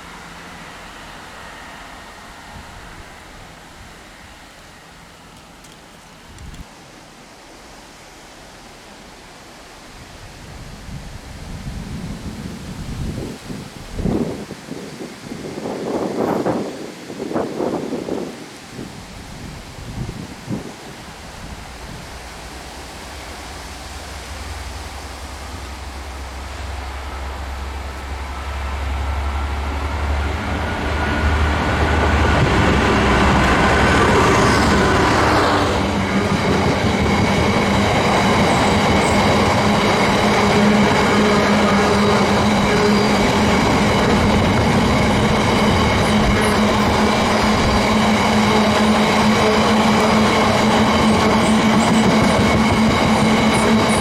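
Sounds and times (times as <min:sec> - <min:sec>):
train engine tone: 0:00.0 - 0:06.6, 0:22.8 - 0:54.0
train passing: 0:00.0 - 0:06.7, 0:07.5 - 0:54.0
wheel and rail noise: 0:00.0 - 0:07.0, 0:20.6 - 0:54.0.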